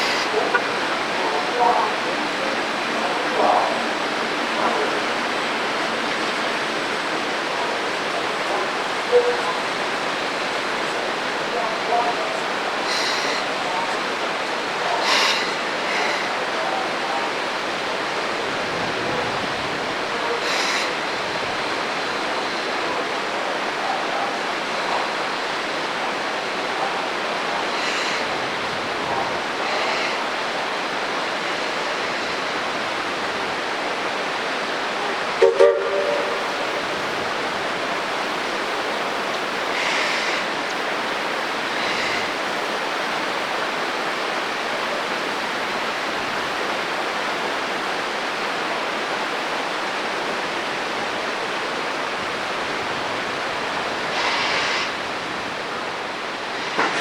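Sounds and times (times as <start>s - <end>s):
creek water rushing: 0.0s - 57.0s
steam locomotive whistle toots: 35.4s - 37.0s, 54.1s - 55.0s.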